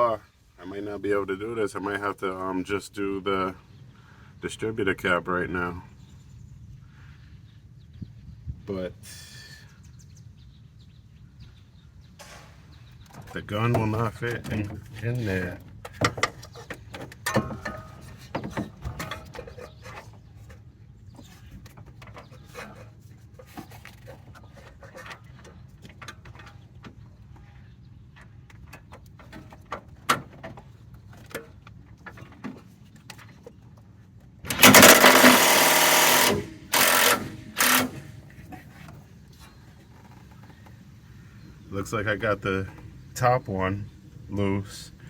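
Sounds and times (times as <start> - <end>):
tool clicking against metal: 34.5 - 38.0
impact wrench hammering: 34.5 - 38.1.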